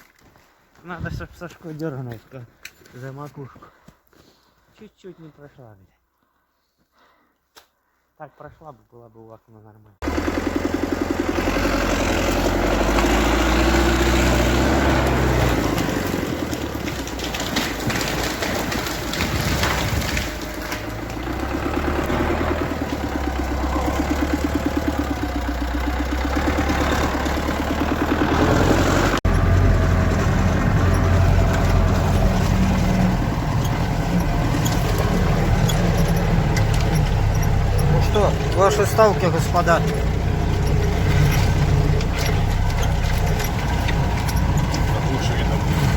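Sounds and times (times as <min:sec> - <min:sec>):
vehicle engine running hard: 0:10.0 - 0:45.9.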